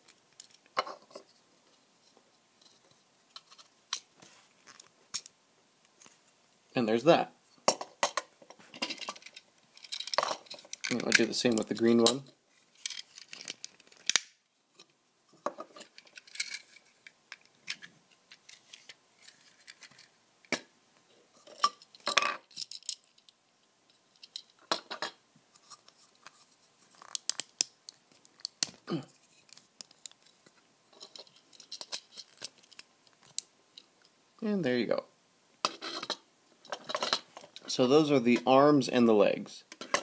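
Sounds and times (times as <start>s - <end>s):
plastic toy parts clicking: 8.8s - 11.8s, 12.8s - 14.3s, 27.0s - 28.8s.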